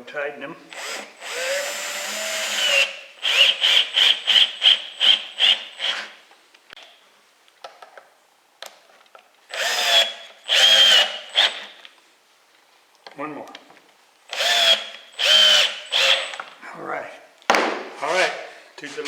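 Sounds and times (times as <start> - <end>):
power drill whining: 0.7 - 6.2, 9.5 - 11.8, 14.3 - 16.5
power drill trigger blips: 14.3 - 16.5.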